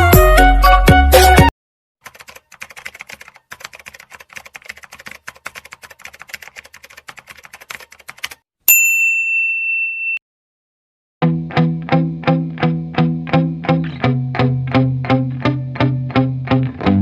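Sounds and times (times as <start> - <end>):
music: 0.0 - 1.5, 11.2 - 17.0
keyboard typing: 2.0 - 8.4.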